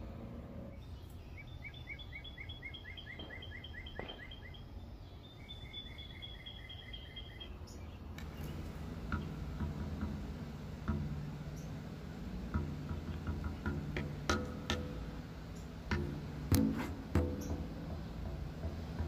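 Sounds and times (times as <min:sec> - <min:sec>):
bird chirping: 0:00.0 - 0:10.2, 0:11.1 - 0:11.8
low outdoor rumble: 0:00.0 - 0:19.0
faint knocks: 0:08.2 - 0:19.0.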